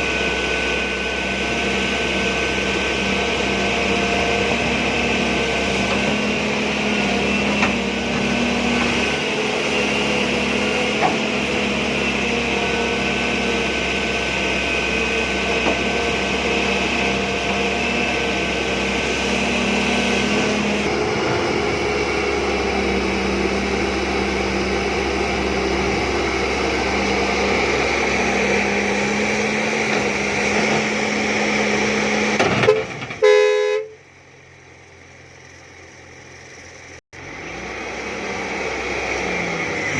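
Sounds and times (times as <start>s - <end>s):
excavator engine droning: 0.0s - 39.9s
short horn-like tone: 32.7s - 34.1s.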